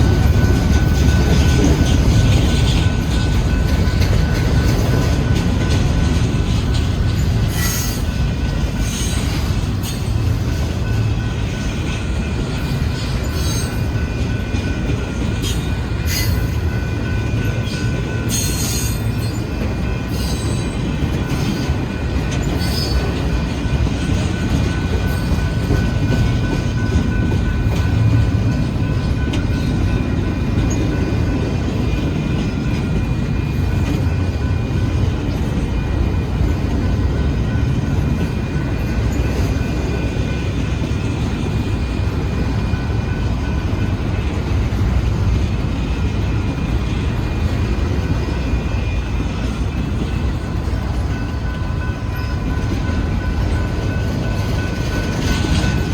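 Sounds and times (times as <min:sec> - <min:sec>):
freight train rolling past: 0:00.0 - 0:55.9.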